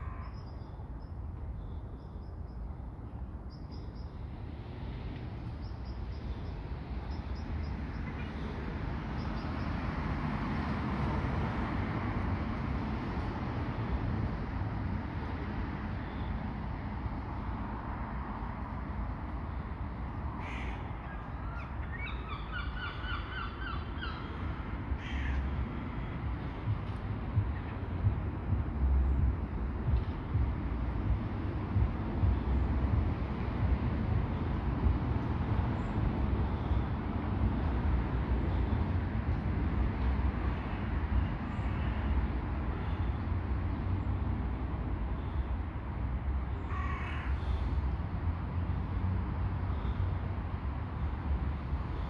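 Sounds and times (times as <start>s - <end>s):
bird calling: 20.4s - 24.4s
steady low rumble: 24.4s - 36.4s.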